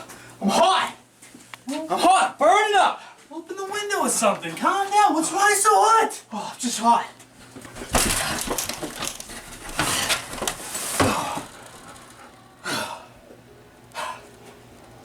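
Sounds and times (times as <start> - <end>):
person panting and gasping: 11.0 - 13.2, 13.9 - 14.3.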